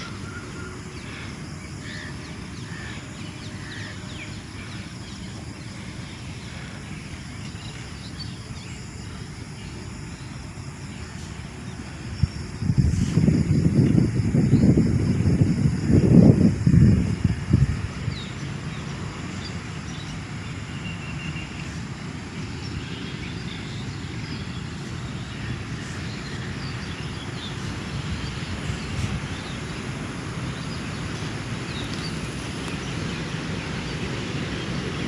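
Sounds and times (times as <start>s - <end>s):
outdoor rumble: 10.9s - 35.0s
faint bird chirps: 22.6s - 29.8s.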